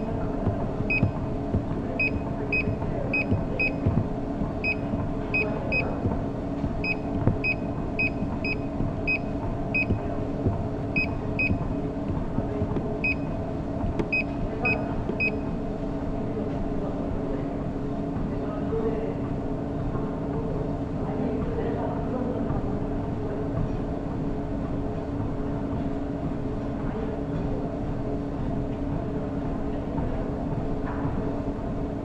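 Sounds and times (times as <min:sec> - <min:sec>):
running footfalls on treadmill belt: 0:00.0 - 0:31.9
steady mechanical hum: 0:00.0 - 0:32.0
treadmill control panel beeps: 0:00.9 - 0:01.2, 0:02.0 - 0:04.0, 0:04.6 - 0:06.0, 0:06.8 - 0:10.1, 0:10.9 - 0:11.8, 0:13.0 - 0:13.4, 0:14.0 - 0:15.5.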